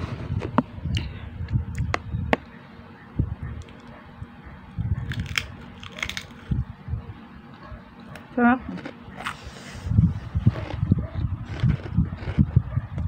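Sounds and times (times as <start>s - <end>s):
crunchy food being chewed: 4.8s - 6.6s, 8.2s - 13.0s.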